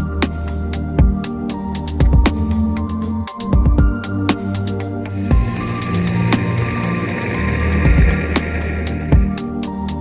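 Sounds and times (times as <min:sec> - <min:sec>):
electronic music: 0:00.0 - 0:10.0
deep kick drums: 0:01.0 - 0:01.2, 0:02.0 - 0:02.5, 0:03.5 - 0:04.0, 0:05.3 - 0:06.6, 0:07.8 - 0:08.4, 0:09.1 - 0:09.4
sustained synth tones: 0:05.2 - 0:09.6.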